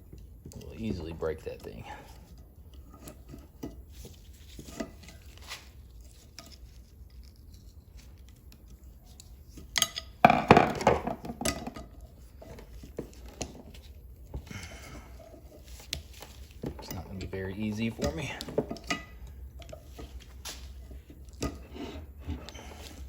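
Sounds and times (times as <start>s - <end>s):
steel tool clinking and scraping metal: 0.5s - 8.0s, 16.4s - 23.0s.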